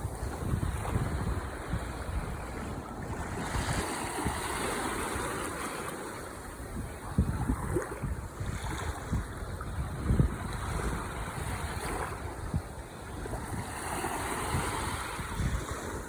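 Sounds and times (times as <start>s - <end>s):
ocean waves breaking: 0.0s - 16.0s.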